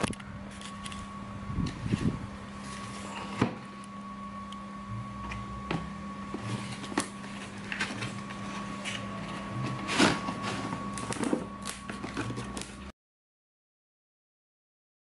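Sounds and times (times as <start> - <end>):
steady electrical hum: 0.0 - 12.9
box being handled: 6.3 - 12.8.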